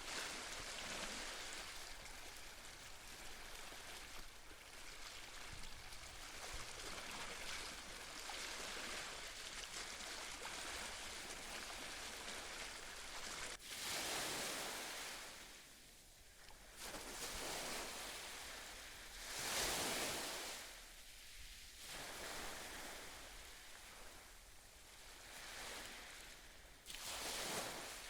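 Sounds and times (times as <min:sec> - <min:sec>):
ocean waves on shore: 0:00.0 - 0:28.0.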